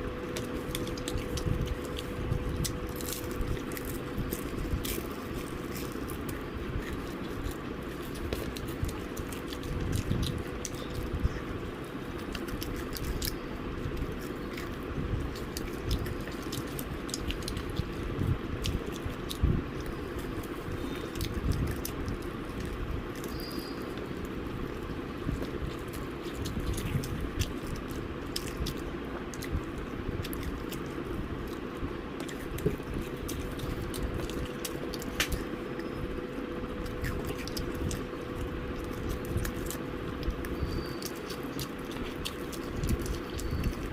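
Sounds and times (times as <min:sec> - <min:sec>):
faint hum: 0:00.0 - 0:43.9
person chewing food: 0:00.0 - 0:43.9
mouth clicks and smacks: 0:25.1 - 0:35.9, 0:36.8 - 0:43.9.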